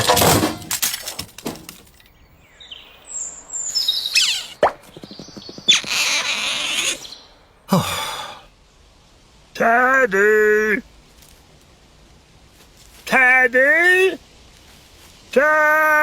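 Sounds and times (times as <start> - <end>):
high chirping whistles: 2.4 - 7.4
hissing noise bursts: 3.0 - 16.0.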